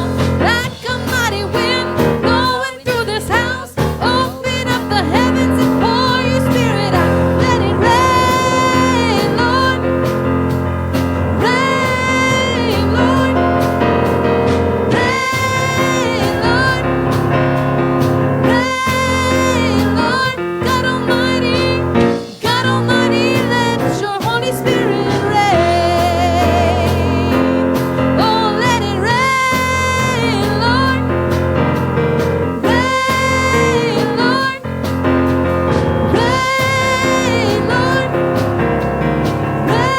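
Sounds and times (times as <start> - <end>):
person singing long notes: 5.0 - 10.3, 11.0 - 17.5
sustained instrumental accompaniment: 5.1 - 20.3.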